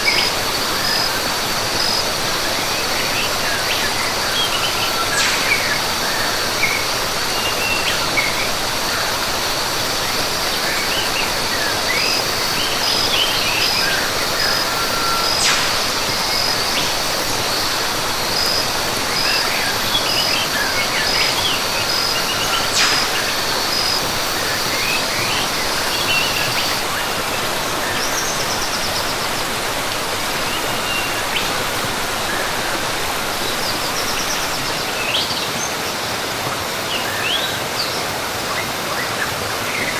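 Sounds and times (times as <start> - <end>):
rush of falling water: 0.0 - 39.9
bird chirps: 2.9 - 8.6, 10.4 - 35.2.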